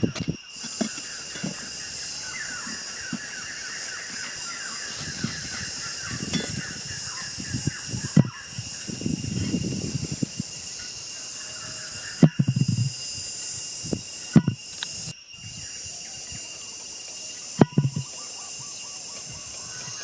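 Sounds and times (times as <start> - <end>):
bird chirping: 0.0 - 9.9
high insect-like hiss: 0.0 - 20.0.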